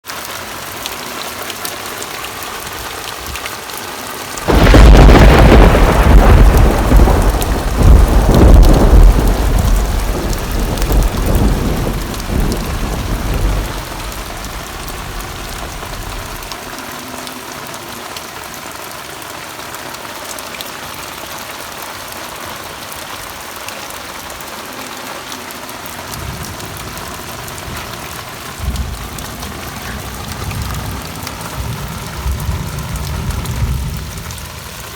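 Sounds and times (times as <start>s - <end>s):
steady rain: 0.0s - 34.9s
thunder clap and rumble: 4.4s - 16.7s, 26.1s - 34.9s.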